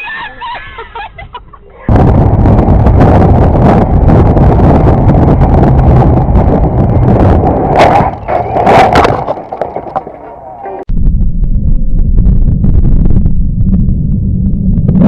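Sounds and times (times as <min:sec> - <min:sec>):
vehicle rumble: 0:01.5 - 0:15.0
wind rushing on microphone: 0:01.9 - 0:15.0.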